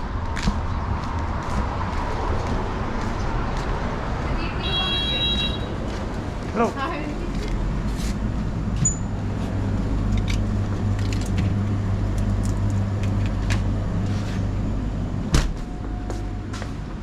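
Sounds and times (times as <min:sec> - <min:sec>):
low mechanical hum: 0:07.1 - 0:17.0.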